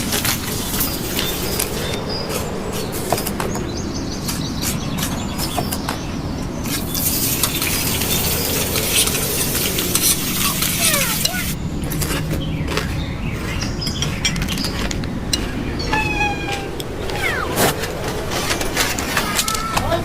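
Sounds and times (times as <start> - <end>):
rustling hiss: 0.0 - 11.6.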